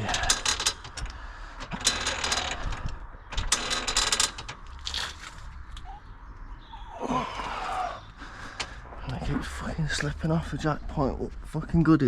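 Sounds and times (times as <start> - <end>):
car jack ratcheting clicks: 0.1 - 5.1.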